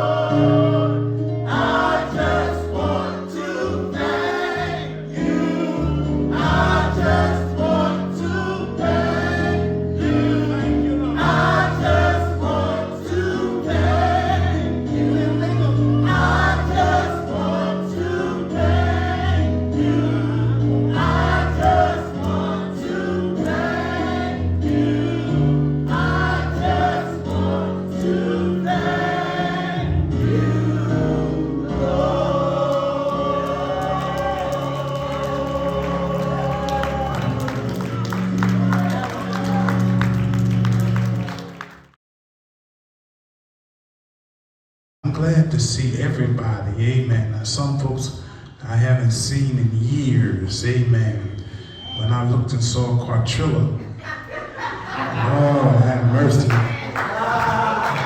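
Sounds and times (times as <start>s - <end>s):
gospel choir singing: 0.0s - 41.1s, 54.0s - 58.0s.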